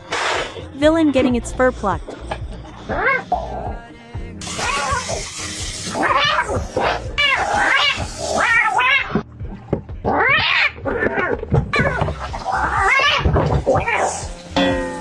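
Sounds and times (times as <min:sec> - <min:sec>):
cat yowling: 0:02.8 - 0:03.3, 0:04.5 - 0:05.3, 0:05.9 - 0:09.2, 0:10.1 - 0:14.3.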